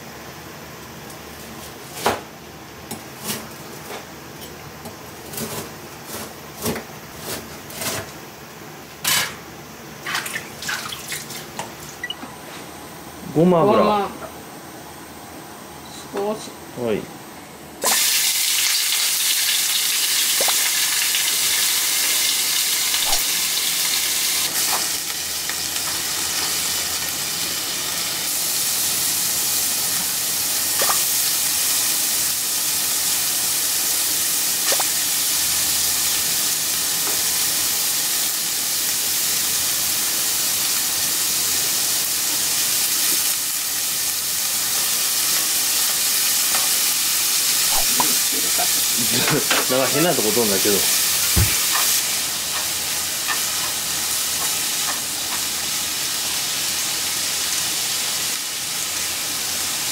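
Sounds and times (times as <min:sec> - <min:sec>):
food sizzling in oil: 0:17.8 - 0:59.9
oil popping and spattering: 0:20.3 - 0:20.8, 0:30.8 - 0:31.0.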